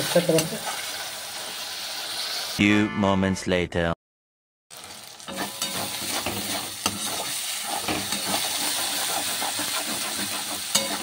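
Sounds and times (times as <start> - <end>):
masala sizzling in a pan: 0.0 - 2.6, 4.7 - 11.0
metal spatula scraping pan: 5.3 - 11.0.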